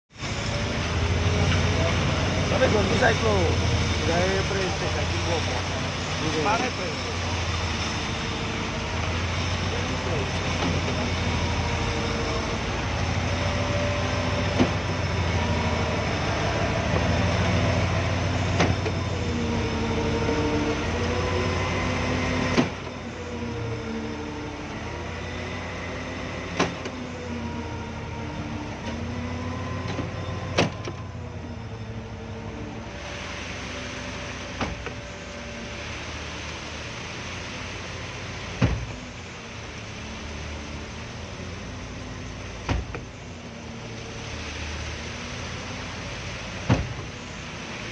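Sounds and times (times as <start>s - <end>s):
concrete pump engine drone: 0.1s - 47.9s
pump clunking: 0.3s - 16.0s, 16.8s - 19.6s, 33.4s - 40.1s, 40.8s - 47.9s.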